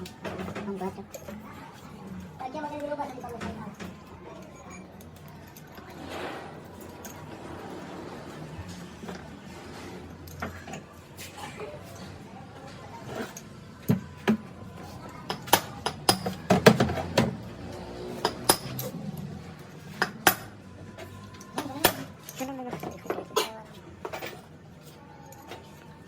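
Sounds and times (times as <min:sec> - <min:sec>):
metal tools clinking: 0:02.7 - 0:06.1, 0:06.7 - 0:07.5, 0:13.1 - 0:17.1, 0:18.1 - 0:25.9.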